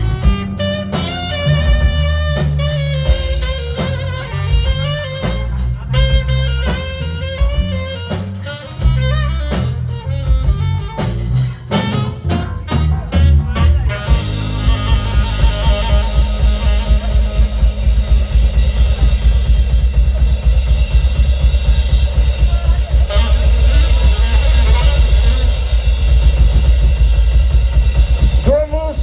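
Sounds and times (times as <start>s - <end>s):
saxophone melody: 0.0s - 28.8s
funky jazz band: 0.0s - 29.0s.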